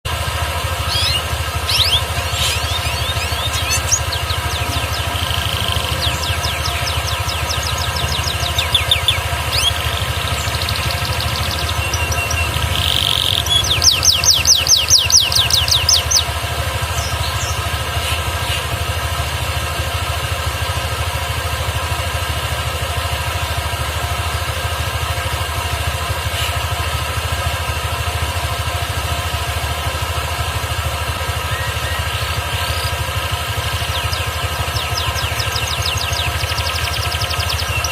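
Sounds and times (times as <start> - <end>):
motor-like hum: 0.1 - 37.9
canary chirps: 0.8 - 18.8, 31.3 - 37.9
canary singing trill: 0.8 - 19.2, 30.2 - 37.9.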